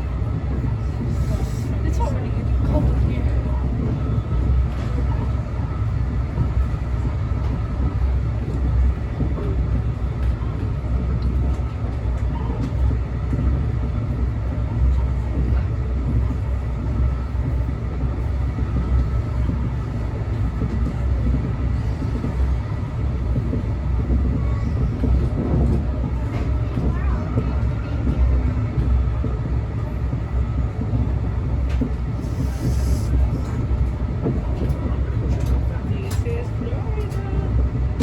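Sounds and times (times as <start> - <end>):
train rumbling: 0.0 - 38.0.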